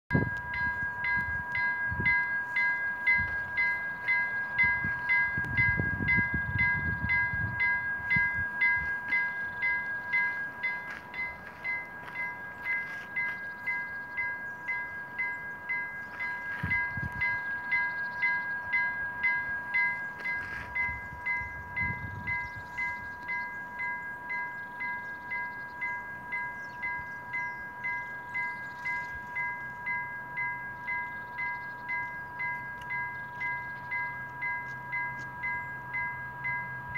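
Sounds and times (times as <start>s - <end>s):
wind on microphone: 0.1s - 2.2s, 4.6s - 9.2s, 16.4s - 17.5s, 20.4s - 23.2s
level crossing bell ringing: 0.1s - 36.9s.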